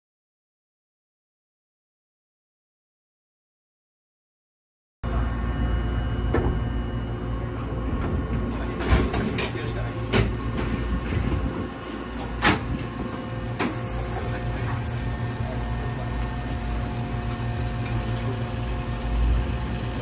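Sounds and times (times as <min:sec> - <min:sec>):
railcar motor humming: 0:05.0 - 0:20.0
railcar doors sliding shut: 0:07.9 - 0:18.3
high electric whine: 0:08.5 - 0:20.0.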